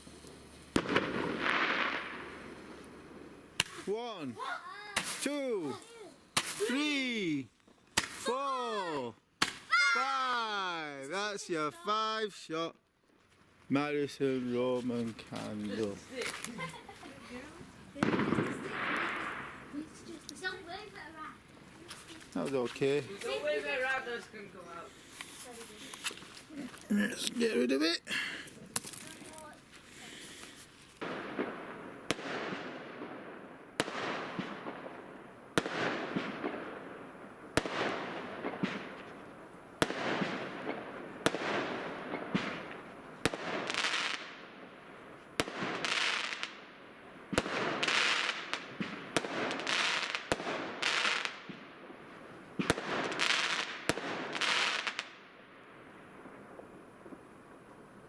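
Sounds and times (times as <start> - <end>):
fireworks cracking and hissing: 0.0 - 58.0.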